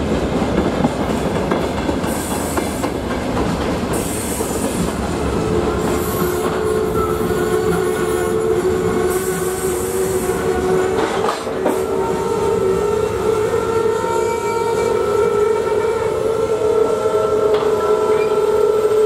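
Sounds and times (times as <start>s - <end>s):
train wheels rumbling on rails: 0.0s - 19.0s
whining squeal: 5.2s - 18.6s.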